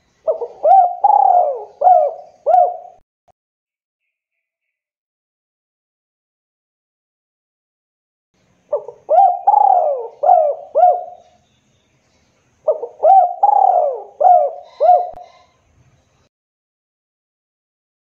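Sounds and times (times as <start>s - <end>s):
dove cooing: 0.2s - 3.0s, 8.7s - 11.3s, 12.6s - 15.5s.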